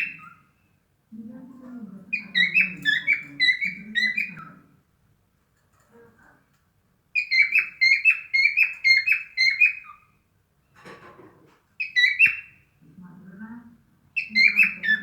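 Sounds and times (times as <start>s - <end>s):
cockatiel chirping whistles: 7.2s - 10.0s, 11.8s - 12.5s.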